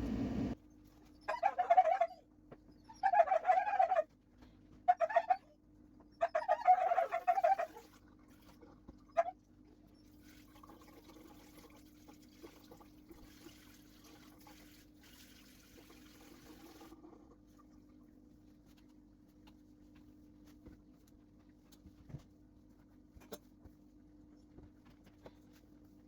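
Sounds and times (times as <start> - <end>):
low appliance hum: 0.0 - 26.0
faint water running: 6.8 - 22.0.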